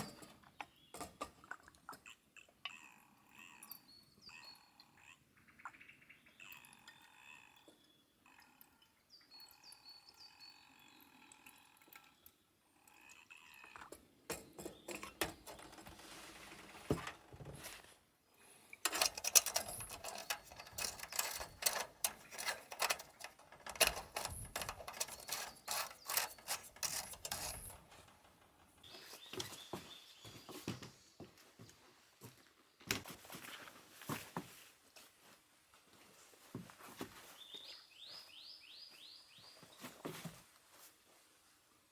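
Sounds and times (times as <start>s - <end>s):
bird calls: 2.7s - 11.2s
rustling of handled objects: 13.9s - 30.7s.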